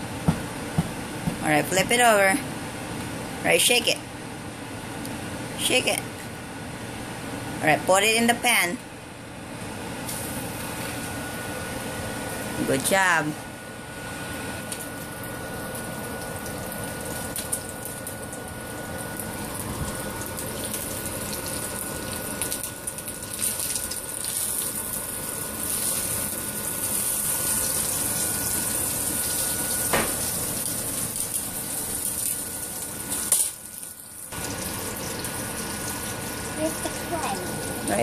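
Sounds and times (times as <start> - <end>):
chicken cutlet sizzling in oil: 14.8 - 37.8.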